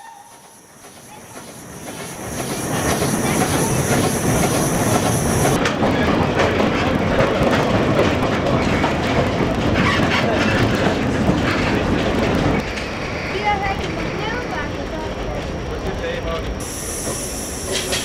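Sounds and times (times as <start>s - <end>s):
train wheels clattering: 0.0s - 18.0s
high steady hiss: 16.6s - 18.0s.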